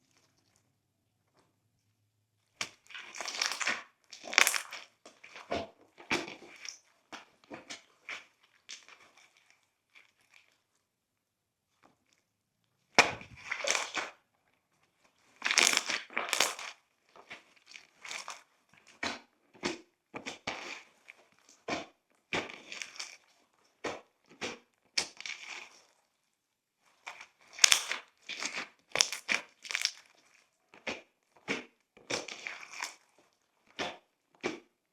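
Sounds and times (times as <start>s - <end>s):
slime squished by hand: 2.6s - 6.8s, 13.0s - 14.2s, 15.4s - 16.8s, 27.1s - 33.0s.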